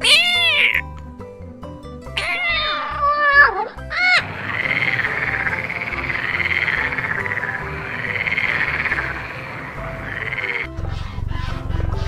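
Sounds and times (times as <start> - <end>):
animal trilling call: 0.0 - 0.9, 2.2 - 10.7
cat meowing: 0.0 - 0.9, 2.2 - 10.7
soft background music: 0.0 - 12.0.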